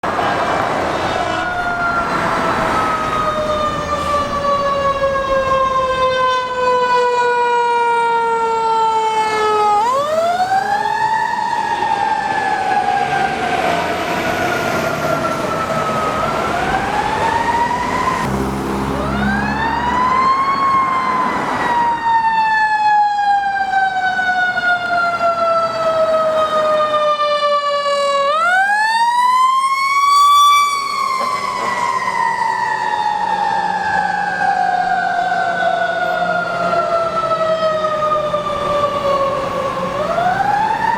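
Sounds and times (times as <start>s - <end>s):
fire engine siren wailing: 0.0s - 40.9s
low horn blast: 18.2s - 20.3s.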